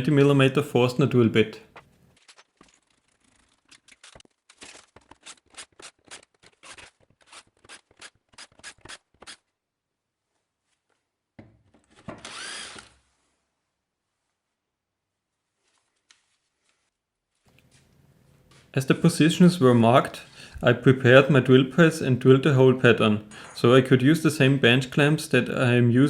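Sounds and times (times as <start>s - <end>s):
drill running: 12.0s - 13.0s.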